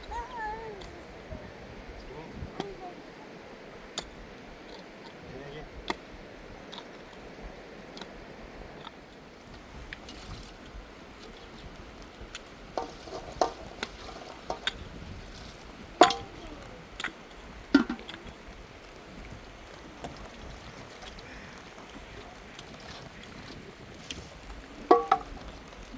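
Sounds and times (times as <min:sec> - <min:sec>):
steady hiss: 0:00.0 - 0:25.9
objects clinking and knocking: 0:12.8 - 0:14.8, 0:16.0 - 0:16.4, 0:24.9 - 0:25.6.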